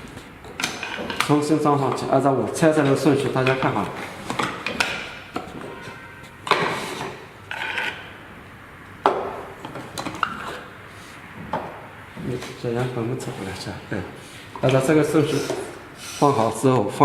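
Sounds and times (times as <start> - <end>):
parts clattering on work surface: 2.8 - 8.1
parts rubbing: 12.1 - 16.5.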